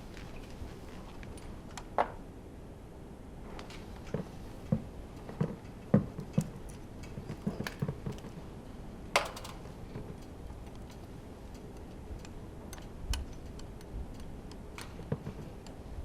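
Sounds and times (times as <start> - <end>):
metal parts clinking and knocking: 5.2 - 8.4, 9.2 - 15.8.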